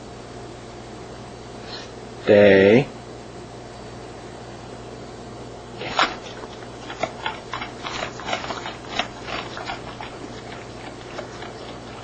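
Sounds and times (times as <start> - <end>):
dog clicks and crunches: 5.8 - 12.0.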